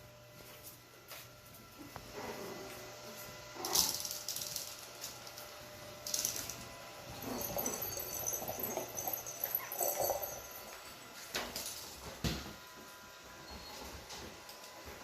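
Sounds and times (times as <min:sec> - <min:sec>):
small dog noises: 0:01.8 - 0:04.2, 0:07.1 - 0:10.8.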